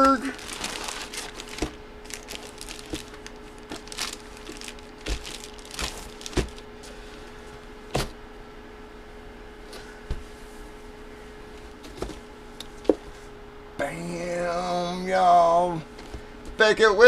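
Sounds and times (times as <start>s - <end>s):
packaging being handled: 0.0s - 6.7s
faint steady hum: 0.0s - 17.0s.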